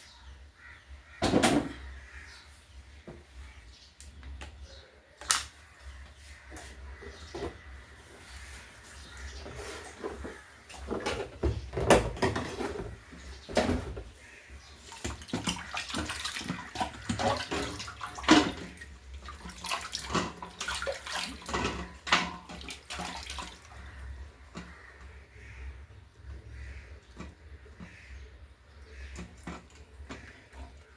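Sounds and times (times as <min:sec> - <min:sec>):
water splashing in a container: 0:09.0 - 0:30.9.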